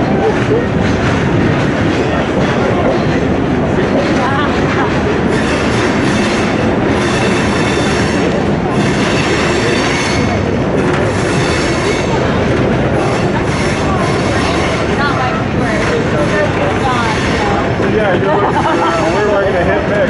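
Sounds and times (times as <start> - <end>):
wheels running on rails: 0.0 - 20.0.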